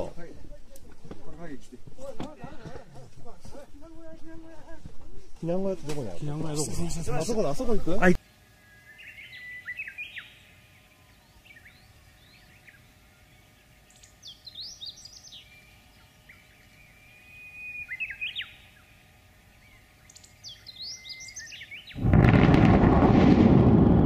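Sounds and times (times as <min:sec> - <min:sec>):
songbird singing: 0:03.2 - 0:22.1.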